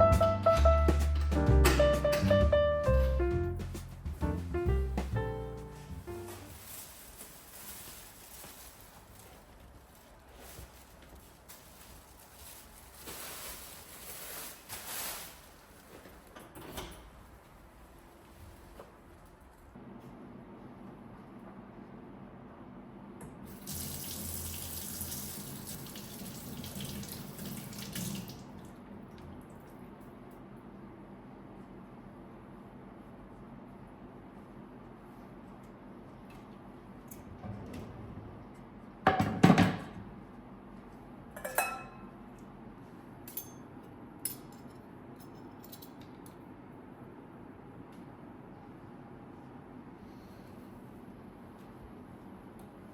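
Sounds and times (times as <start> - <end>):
kitchen items clattering: 41.4 - 42.0.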